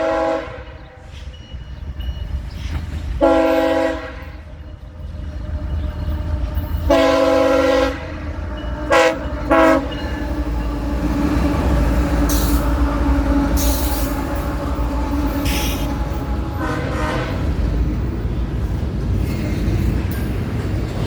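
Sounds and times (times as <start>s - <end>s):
locomotive air horn: 0.0s - 1.1s, 3.2s - 4.5s, 5.4s - 10.1s, 10.8s - 17.8s
train rumbling: 0.0s - 21.0s.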